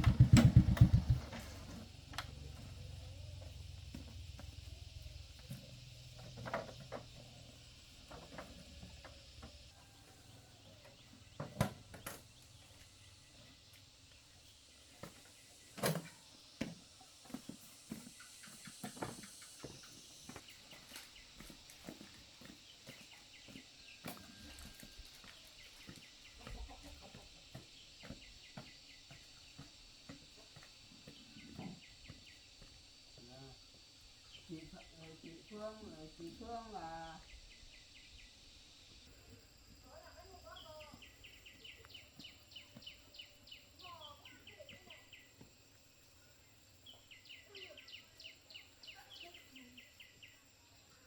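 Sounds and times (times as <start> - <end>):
low hum: 0.0 - 8.1
background hiss: 0.0 - 51.0.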